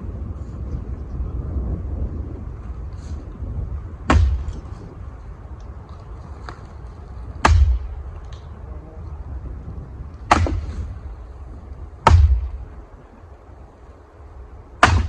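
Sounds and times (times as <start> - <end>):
low wind rumble: 0.0 - 15.0
heavy knocks of firewood: 4.0 - 4.9, 7.4 - 8.5, 10.2 - 11.1, 12.0 - 12.8, 14.8 - 15.0.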